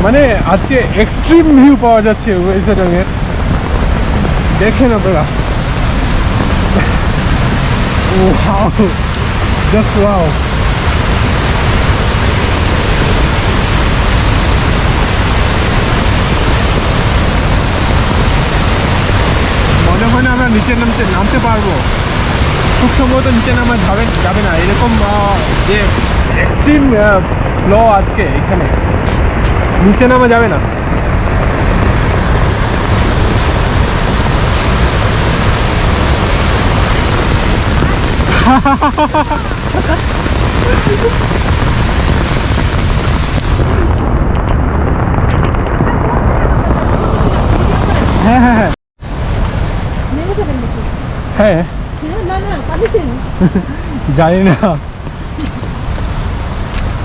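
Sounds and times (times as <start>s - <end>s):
waterfall rushing: 1.4s - 28.0s, 29.9s - 44.3s, 46.8s - 57.0s.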